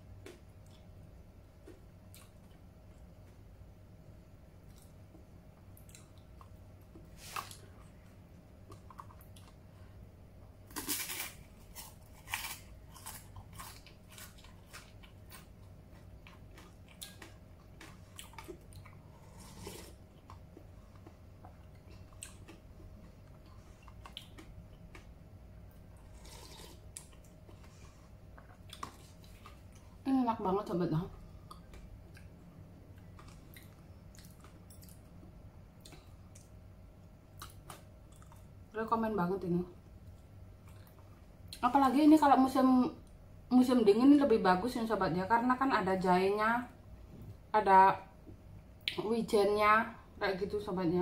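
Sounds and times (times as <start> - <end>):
chewing crispy chips: 10.7 - 25.1, 25.7 - 27.7, 31.4 - 35.2, 37.3 - 38.5.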